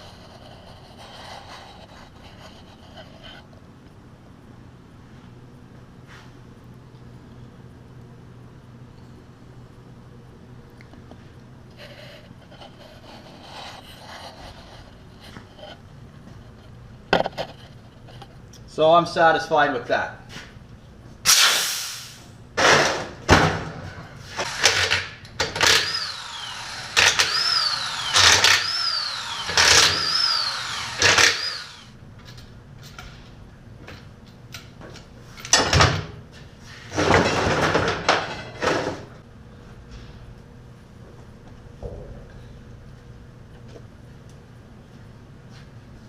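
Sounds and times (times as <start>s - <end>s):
short hissing bursts: 21.3s - 22.3s.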